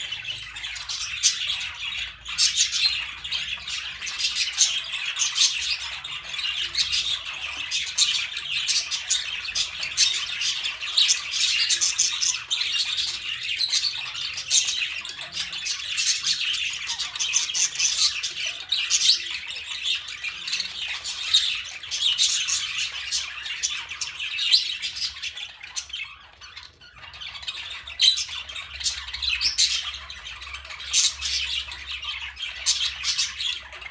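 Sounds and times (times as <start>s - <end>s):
birds squawking and chirping: 0.0s - 33.9s.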